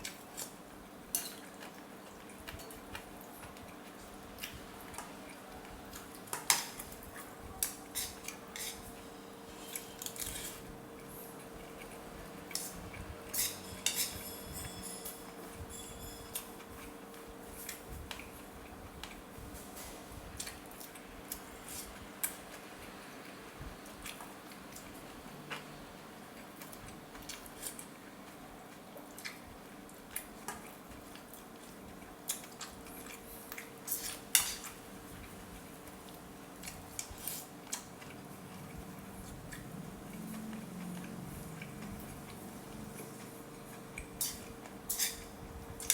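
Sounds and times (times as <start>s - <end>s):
room hum: 0.0s - 45.9s
utensils clinking against bowl: 12.5s - 16.9s, 44.0s - 45.9s.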